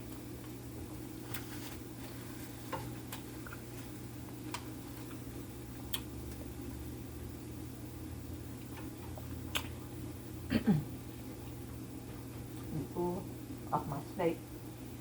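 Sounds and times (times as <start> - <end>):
steady low hum: 0.0 - 15.0
chewing a sandwich: 1.3 - 6.5
mouth clicks: 9.5 - 9.8.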